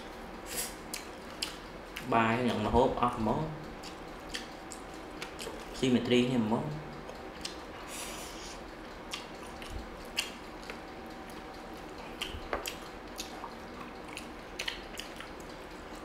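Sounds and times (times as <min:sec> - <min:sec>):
wet chewing: 0:00.9 - 0:02.1, 0:03.7 - 0:05.8, 0:07.1 - 0:16.0.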